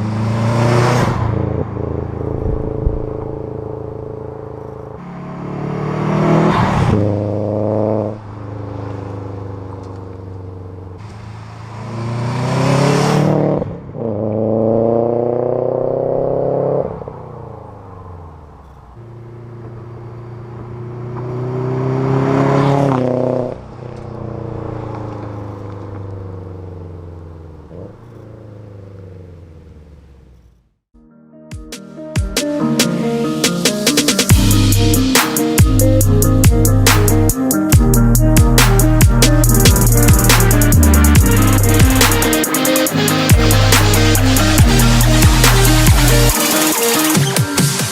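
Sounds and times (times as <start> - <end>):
car engine revving hard: 0.0 - 3.3, 5.0 - 9.8, 11.0 - 17.8, 20.3 - 23.7, 36.4 - 47.9.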